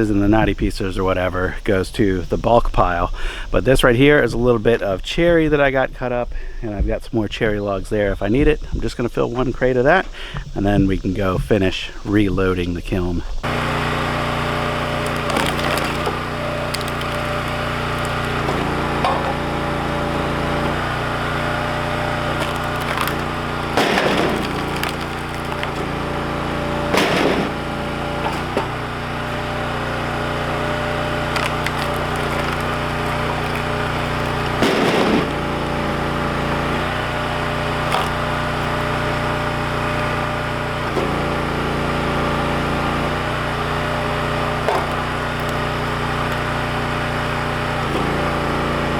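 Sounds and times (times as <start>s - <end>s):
log splitter engine running: 13.4s - 48.9s
wood splitting cracks: 13.4s - 48.9s.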